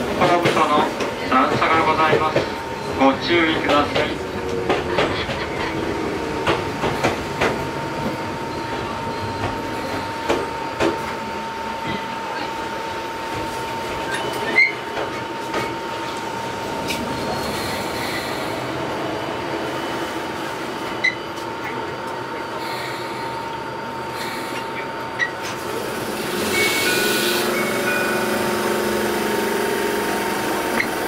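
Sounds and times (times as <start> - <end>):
train running noise: 0.0 - 31.0.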